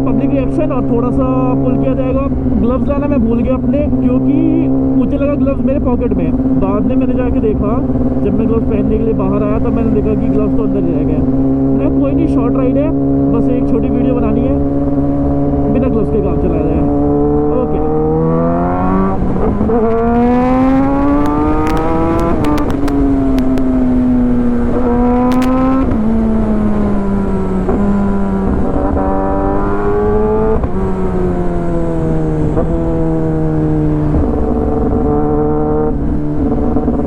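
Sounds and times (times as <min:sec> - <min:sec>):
motorcycle engine pulling away: 0:16.6 - 0:37.0.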